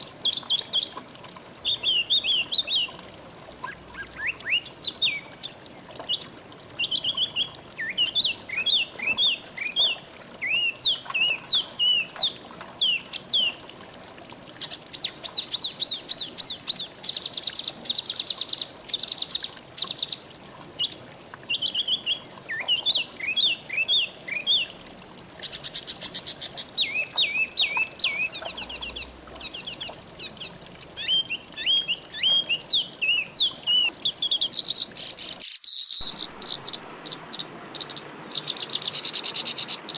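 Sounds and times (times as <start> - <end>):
songbird chirping and trilling: 1.6 - 3.0, 3.6 - 13.6, 20.8 - 24.8, 25.5 - 39.9.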